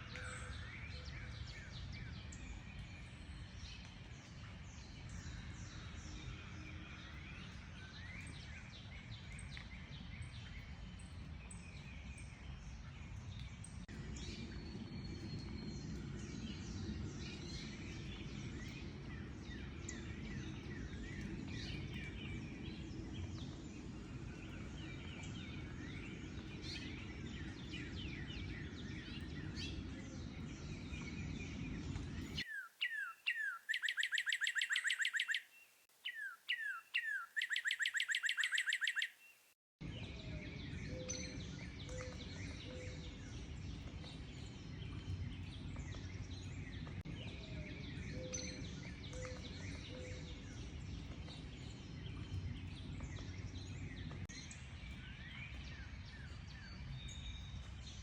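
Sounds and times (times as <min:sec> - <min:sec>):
bird song with high trill: 0:14.0 - 0:58.0
many birds chirping: 0:14.4 - 0:56.9.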